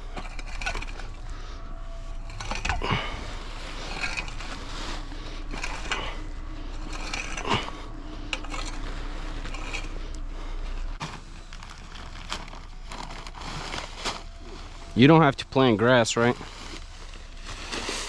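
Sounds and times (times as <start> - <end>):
metallic scrapes and clanks: 0.0 - 11.3
low machine hum: 0.0 - 18.0.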